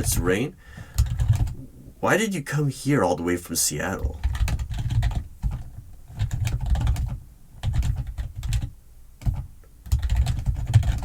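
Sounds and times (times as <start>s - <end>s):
keyboard typing: 0.0s - 1.6s, 4.0s - 11.0s.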